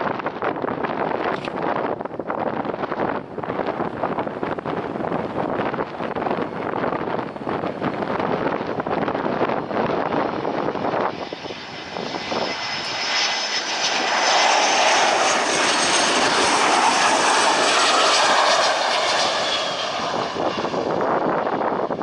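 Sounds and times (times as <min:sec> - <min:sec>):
airplane engines: 0:00.0 - 0:22.0.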